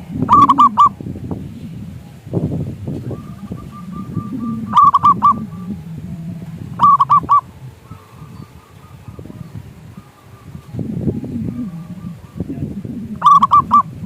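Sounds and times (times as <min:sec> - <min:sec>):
dove cooing: 0:00.0 - 0:14.0.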